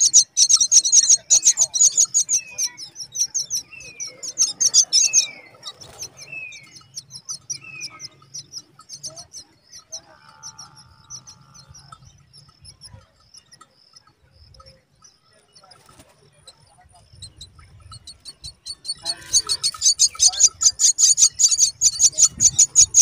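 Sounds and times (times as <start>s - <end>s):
nestlings high chirping: 0.0s - 23.0s
short falling bird calls: 18.7s - 21.8s.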